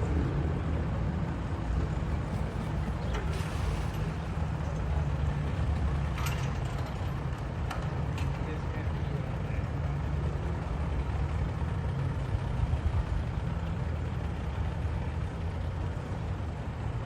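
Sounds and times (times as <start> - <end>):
engine running low rumble: 0.0 - 17.0.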